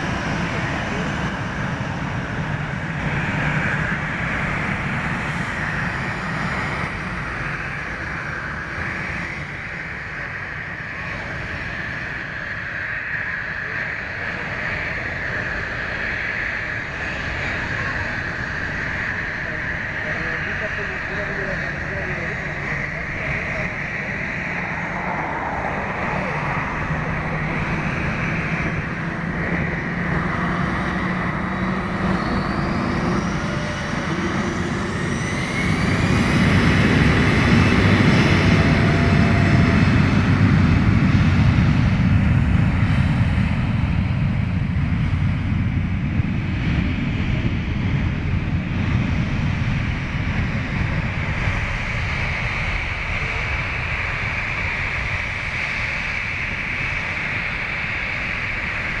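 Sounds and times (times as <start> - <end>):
deep roar of jet taking off: 0.0 - 59.0
jet engines spooling up: 13.5 - 43.9.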